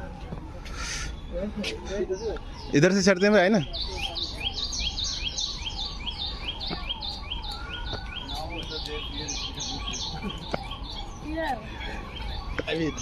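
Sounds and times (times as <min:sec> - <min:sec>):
birds chirping: 0:00.0 - 0:13.0
faint voices: 0:00.0 - 0:13.0.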